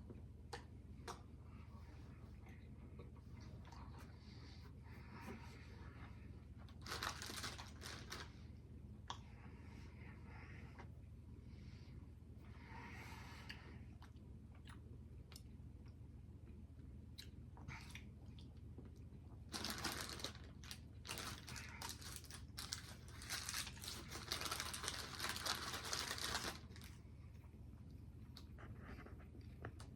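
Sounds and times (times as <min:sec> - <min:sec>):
wrapper crinkling: 0:06.7 - 0:08.3, 0:19.5 - 0:27.0.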